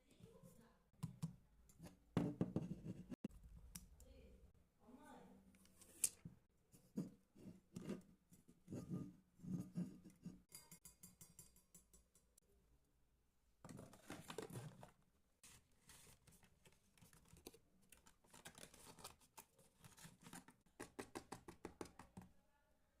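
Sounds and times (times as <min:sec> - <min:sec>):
packaging rustling: 0:13.7 - 0:20.6.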